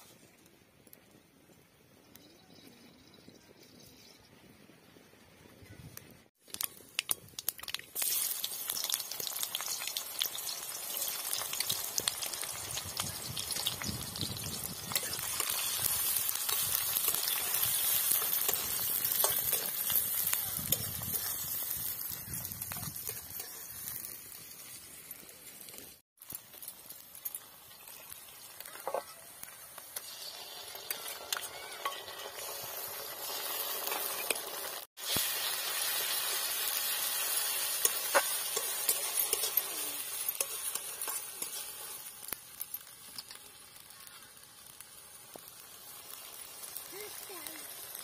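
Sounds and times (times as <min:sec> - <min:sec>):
onions sizzling in oil: 0:06.5 - 0:48.0
steel spoon scraping pan: 0:14.9 - 0:21.4, 0:30.0 - 0:34.6, 0:37.6 - 0:42.1.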